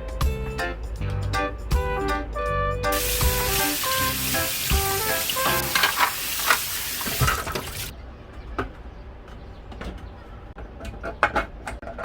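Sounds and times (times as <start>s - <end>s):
tap water running into sink: 2.9s - 7.9s.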